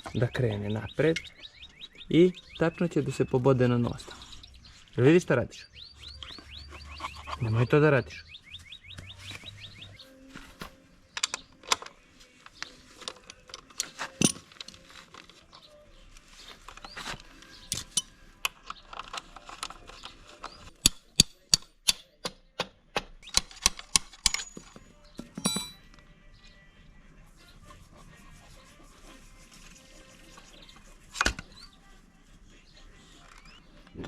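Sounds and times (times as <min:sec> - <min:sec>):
metal tools clinking and tapping: 0:11.1 - 0:15.3, 0:17.7 - 0:19.8, 0:24.0 - 0:26.0.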